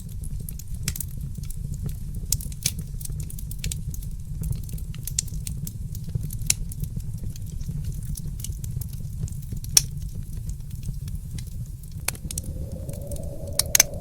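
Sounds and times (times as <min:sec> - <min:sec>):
low rumble of flames: 0:12.0 - 0:14.0.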